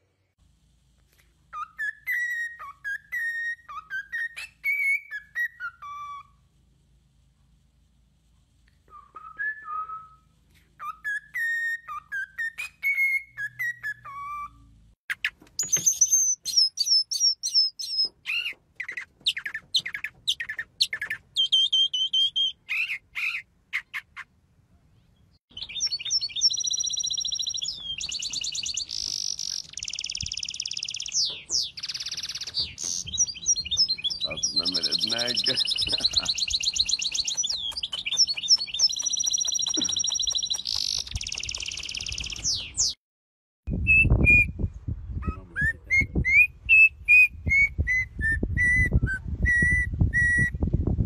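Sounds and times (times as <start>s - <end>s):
cockatiel whistling a tune: 1.5s - 6.4s, 8.9s - 14.7s, 15.6s - 23.4s, 25.6s - 43.0s, 43.7s - 44.6s, 45.2s - 50.6s
mockingbird singing: 10.8s - 24.4s, 25.0s - 43.0s
songbird trilling: 15.1s - 24.3s, 25.5s - 42.9s.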